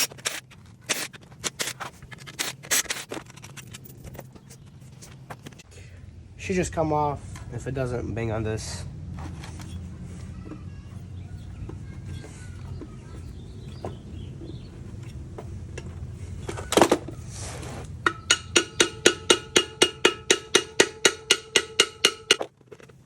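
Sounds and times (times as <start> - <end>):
rapid tapping on metal cover: 18.0 - 22.6.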